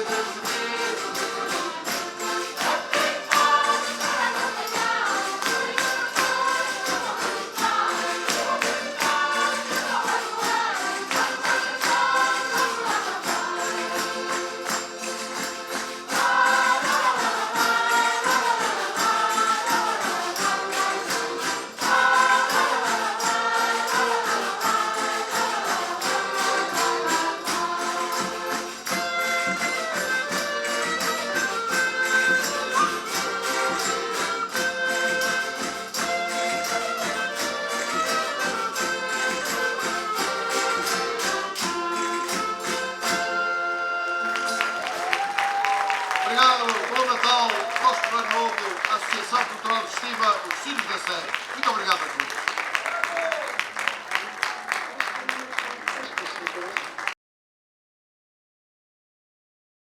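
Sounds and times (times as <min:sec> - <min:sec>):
folk group singing in chorus: 0:00.0 - 0:43.6
instrumental accompaniment: 0:00.0 - 0:54.4
jingling tambourine beat: 0:00.0 - 0:54.8.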